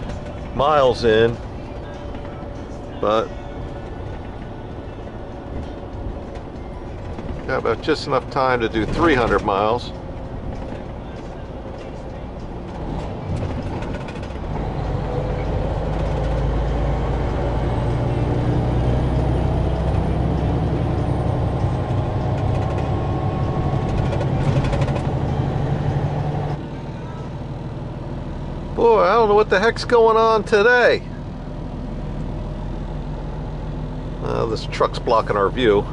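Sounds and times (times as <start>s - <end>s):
truck diesel engine drone: 0.0s - 35.9s.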